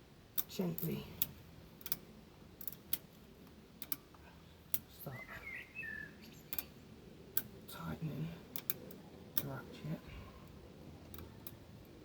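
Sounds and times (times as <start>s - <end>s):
bird chirping: 5.0s - 6.8s.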